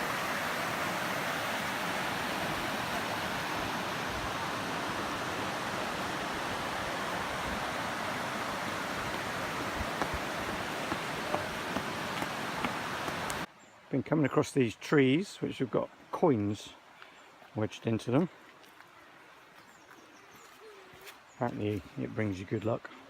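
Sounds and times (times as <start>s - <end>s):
river water rushing over rocks: 0.0s - 13.5s.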